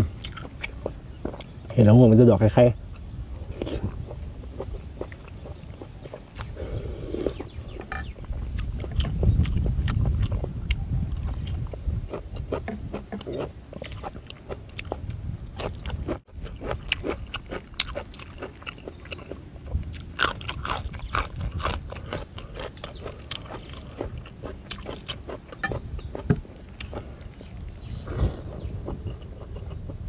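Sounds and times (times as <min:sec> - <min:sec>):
crunching crisp vegetables: 0:00.0 - 0:01.5, 0:07.2 - 0:28.3.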